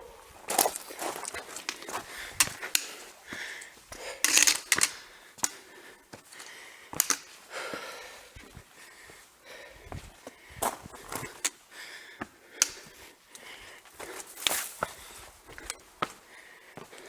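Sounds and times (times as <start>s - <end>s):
footsteps on gravel: 0.0s - 4.2s, 13.9s - 17.0s.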